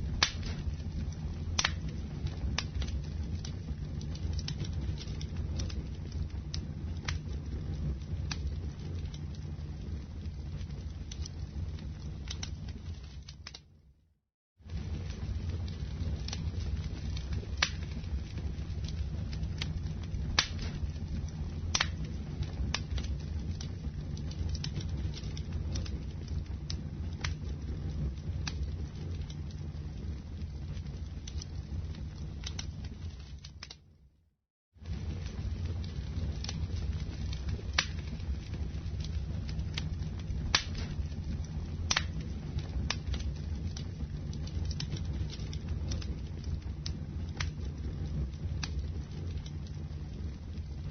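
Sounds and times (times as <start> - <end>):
fire crackling and popping: 0.0 - 14.0, 14.6 - 34.2, 34.8 - 50.9
fire rumbling: 0.0 - 50.9
wood popping: 17.2 - 25.9, 37.4 - 47.7.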